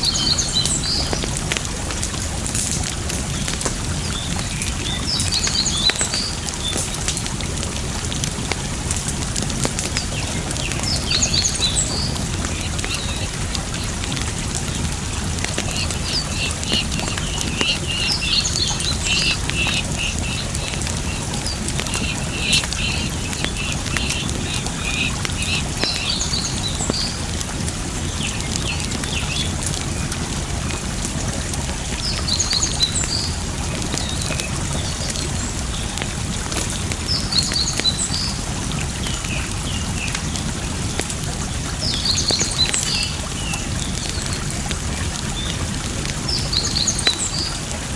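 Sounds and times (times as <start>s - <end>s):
birds chirping: 0.0s - 8.4s, 9.3s - 27.4s, 31.8s - 41.0s
campfire wood crackling: 0.0s - 47.9s
flowing water: 0.0s - 47.9s.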